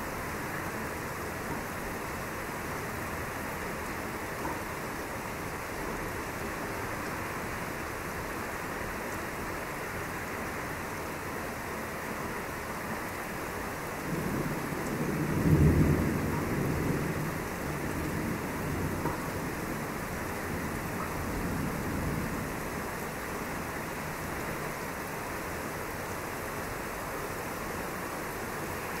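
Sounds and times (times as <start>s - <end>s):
steady rain falling: 0.0s - 29.0s
thunder rumble: 14.1s - 22.6s.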